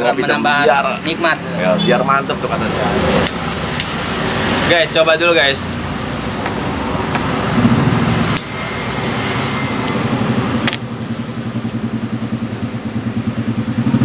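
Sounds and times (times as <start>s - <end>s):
sharp clicks: 8.3s - 8.5s
motorcycle engine idling: 10.1s - 14.0s.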